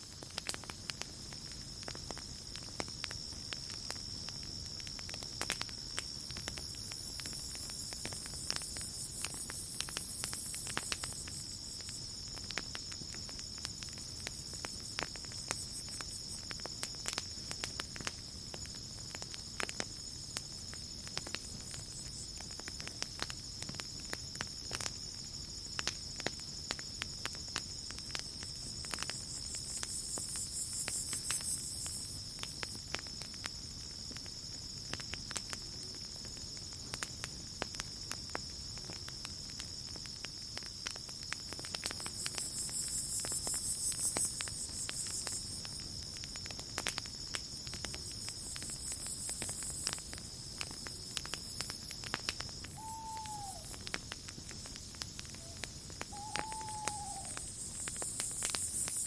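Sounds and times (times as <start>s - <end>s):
campfire crackling and popping: 0.0s - 59.0s
night insects trilling: 0.0s - 59.0s
pulsing insect chirr: 41.3s - 46.5s, 47.2s - 59.0s.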